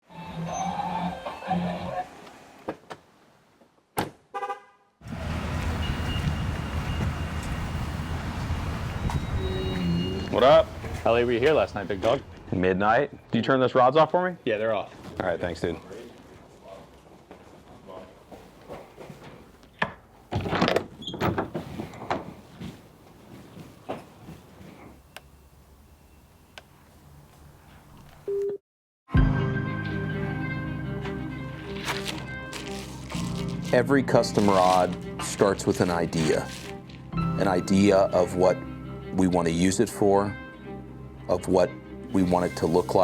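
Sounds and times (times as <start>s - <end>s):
car horn toot: 4.3s - 4.9s, 5.8s - 7.5s, 9.0s - 10.8s.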